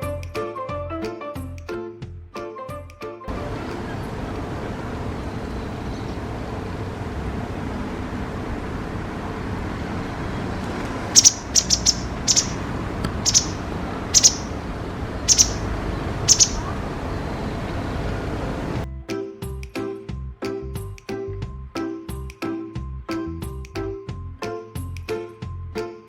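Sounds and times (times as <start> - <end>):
low rushing noise: 3.3 - 18.8
wagtail chirping: 10.3 - 18.8.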